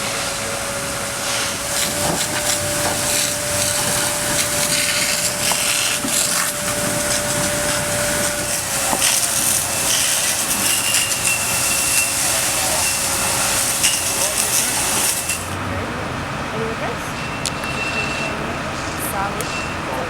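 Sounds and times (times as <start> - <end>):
steady whine: 0.0 - 20.0
fire crackling and popping: 1.5 - 15.6.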